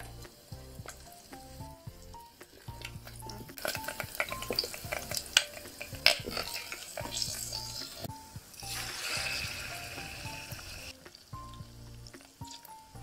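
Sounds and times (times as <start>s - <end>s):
shallots sizzling in hot oil: 0.0s - 13.0s
soft piano background music: 0.0s - 13.0s
spoon clinking against pot: 3.5s - 8.0s.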